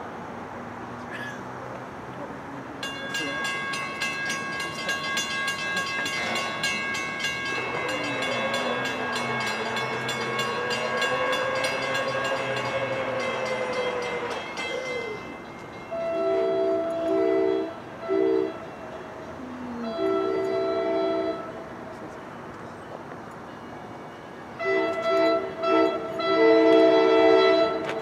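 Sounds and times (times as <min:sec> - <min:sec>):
train humming: 0:00.0 - 0:28.0
crossing bell ringing: 0:02.8 - 0:19.4, 0:20.0 - 0:28.0
train horn blast: 0:07.7 - 0:14.6, 0:15.9 - 0:18.8, 0:19.7 - 0:21.7, 0:24.5 - 0:28.0.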